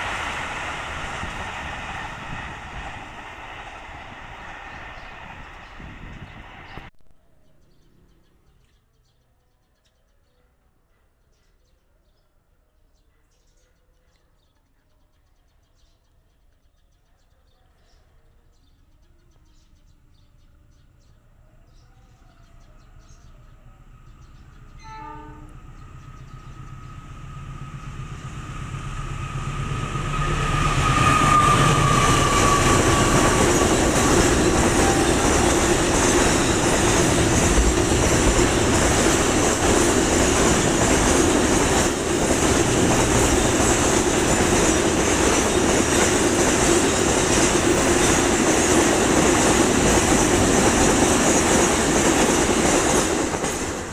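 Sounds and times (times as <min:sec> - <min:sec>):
train wheels rumbling on rail: 0:00.0 - 0:06.9, 0:23.2 - 0:53.9
train horn blast: 0:24.7 - 0:26.0, 0:29.2 - 0:36.1.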